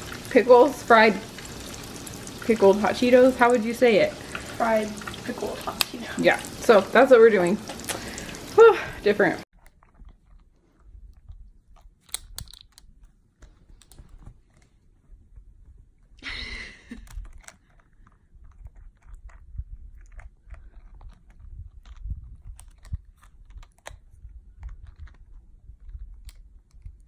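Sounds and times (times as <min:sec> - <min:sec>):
crunching snack food: 0:16.9 - 0:26.6.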